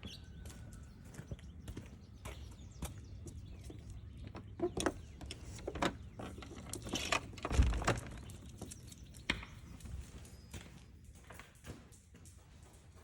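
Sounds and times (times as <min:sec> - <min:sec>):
footsteps on forest trail: 0:00.0 - 0:05.1.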